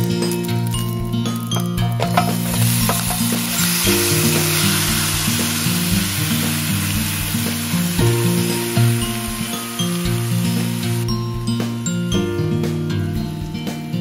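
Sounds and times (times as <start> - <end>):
food sizzling in hot oil: 0.0 - 11.1.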